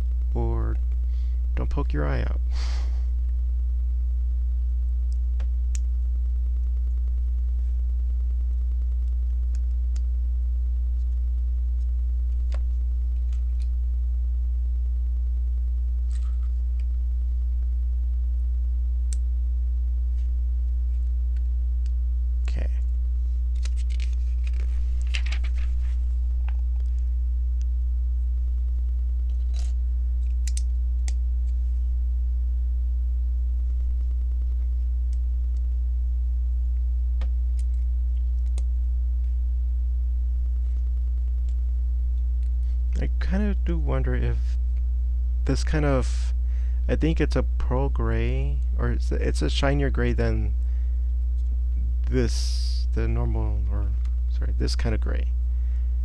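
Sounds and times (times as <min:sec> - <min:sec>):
buzzy electrical mains hum: 0:00.0 - 0:56.0
crackly rustle of plastic pieces: 0:23.5 - 0:26.0.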